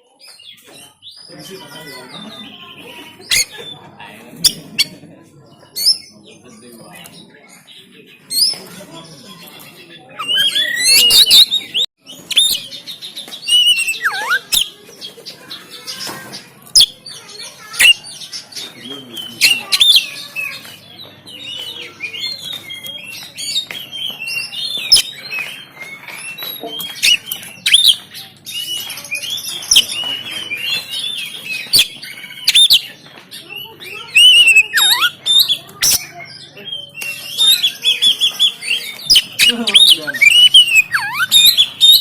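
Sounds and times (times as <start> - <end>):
bird singing harsh varied song: 0.0 - 42.0.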